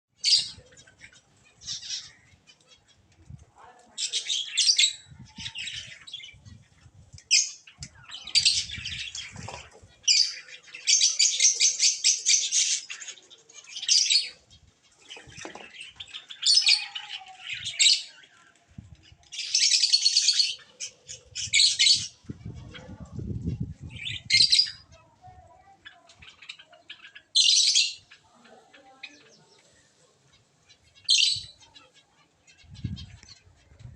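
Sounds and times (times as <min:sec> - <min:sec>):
pigeons flapping and splashing: 0:09.1 - 0:09.8, 0:15.0 - 0:15.9.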